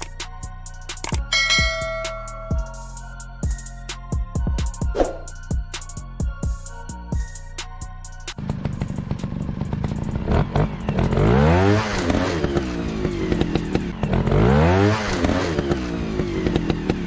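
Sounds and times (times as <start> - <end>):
dirt bike engine revving: 8.4 - 17.0.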